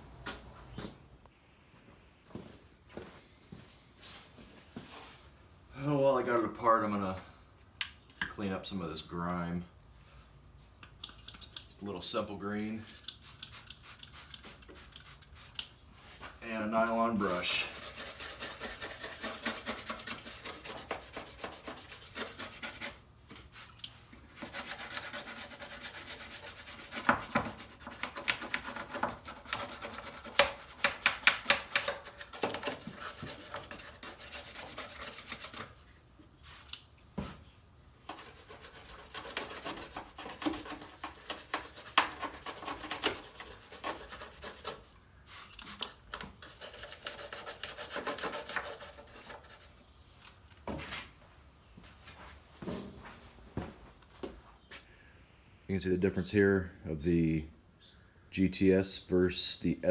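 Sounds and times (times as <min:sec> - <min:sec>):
brush scrubbing wet surfaces: 0:16.4 - 0:23.0, 0:24.3 - 0:35.8, 0:38.1 - 0:44.9, 0:46.4 - 0:49.7.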